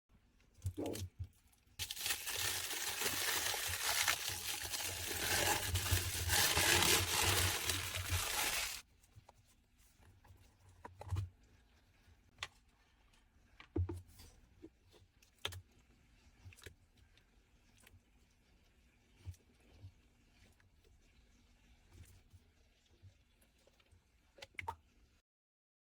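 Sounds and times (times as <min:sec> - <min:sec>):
slime crinkling and crackling: 0:01.8 - 0:08.8.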